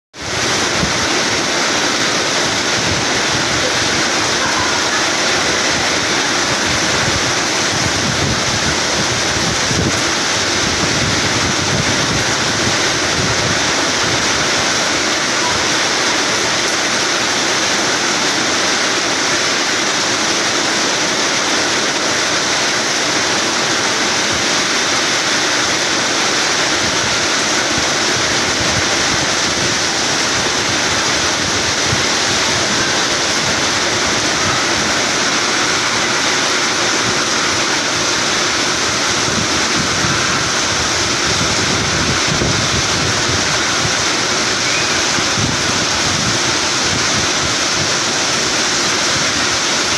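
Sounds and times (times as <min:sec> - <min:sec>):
heavy rain pouring: 0:00.1 - 0:49.9.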